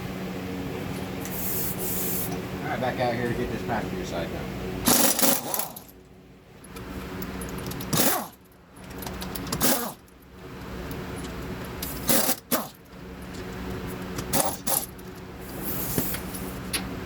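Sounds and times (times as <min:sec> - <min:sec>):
steady low hum: 0:00.0 - 0:17.0
tools clanking and rattling: 0:04.8 - 0:06.0, 0:06.6 - 0:15.3.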